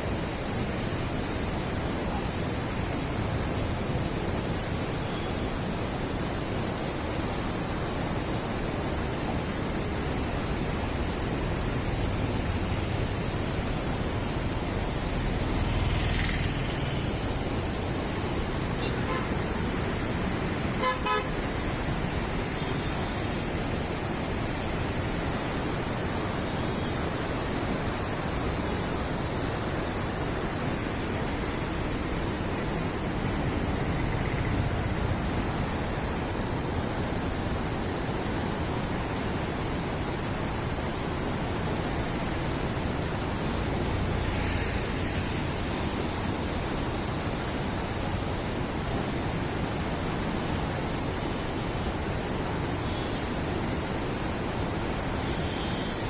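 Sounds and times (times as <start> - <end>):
rushing road traffic: 0.0 - 56.0
vehicle horn honk: 18.8 - 19.4, 20.8 - 21.4.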